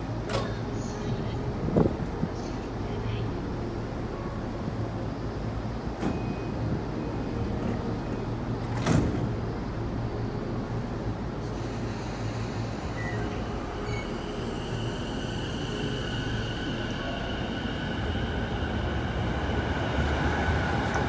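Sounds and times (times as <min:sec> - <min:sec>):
short beeps: 0:06.0 - 0:06.7
sliding doors slamming shut: 0:08.6 - 0:09.4.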